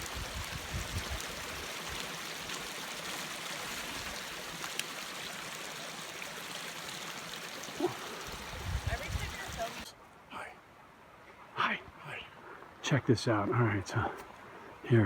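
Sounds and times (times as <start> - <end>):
mountain stream rushing: 0.0 - 10.0.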